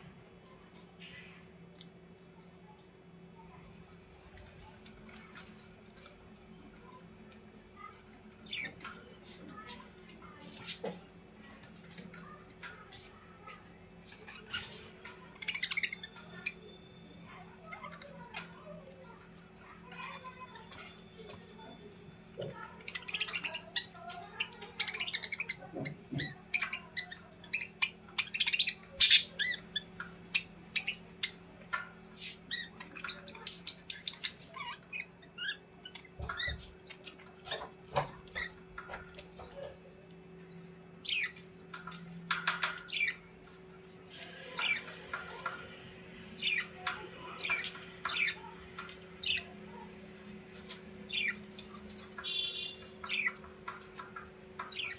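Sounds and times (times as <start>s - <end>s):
bird squawking and chirping: 22.5s - 31.4s, 41.0s - 43.2s, 44.3s - 45.5s, 46.3s - 49.9s, 50.5s - 54.9s.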